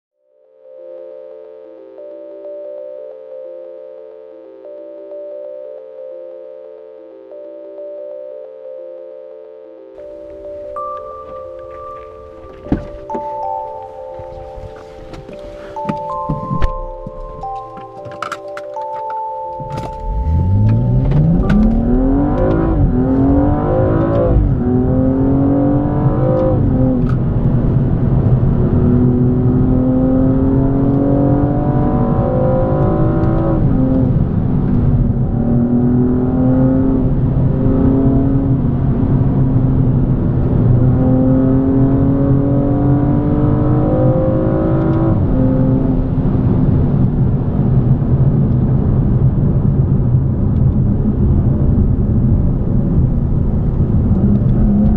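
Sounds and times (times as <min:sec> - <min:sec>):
car engine accelerating: 0:19.8 - 0:54.9.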